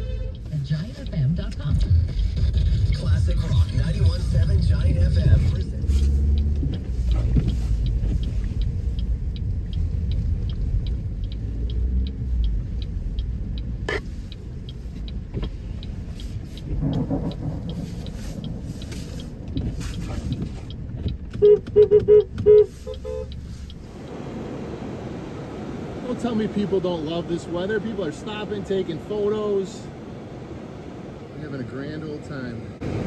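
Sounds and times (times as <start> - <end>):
car horn toots: 0.0 - 0.6, 21.3 - 23.4
car engine and road rumble: 0.0 - 33.0
faint regular ticking: 0.3 - 24.0.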